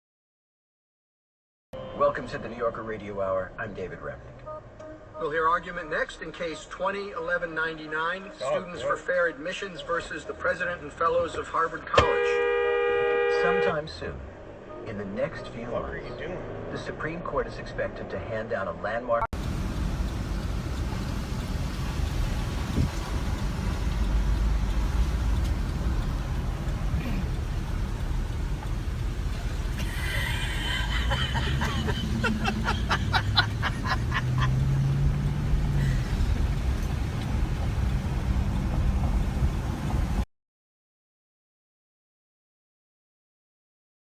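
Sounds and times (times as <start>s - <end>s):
road and engine rumble: 1.8s - 40.2s
rapid high ticks: 19.4s - 29.0s.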